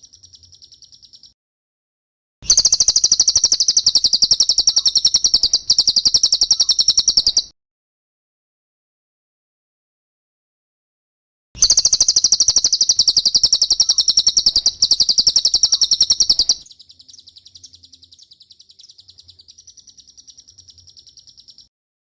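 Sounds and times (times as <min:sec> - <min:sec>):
bird trilling high chirps: 0:00.0 - 0:01.4, 0:02.5 - 0:07.5, 0:11.6 - 0:21.7.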